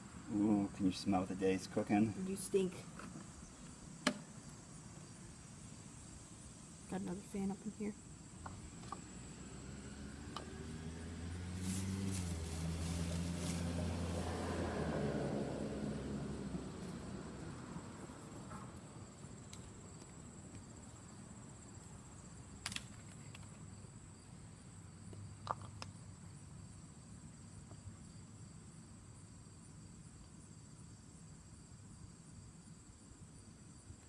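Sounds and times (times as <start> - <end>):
vehicle passing: 8.7 - 18.7.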